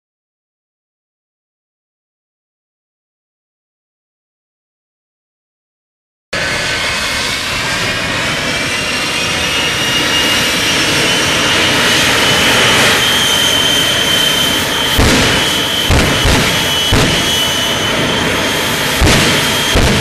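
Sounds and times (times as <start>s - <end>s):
high rising whine: 6.4s - 20.0s
jet engines roaring: 6.4s - 20.0s
sharp bang: 14.5s - 20.0s.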